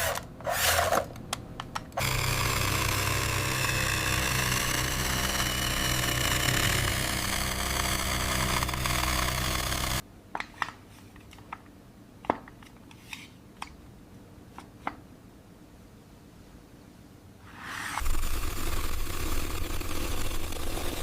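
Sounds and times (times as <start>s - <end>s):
engine running: 2.0s - 10.0s, 18.0s - 21.0s.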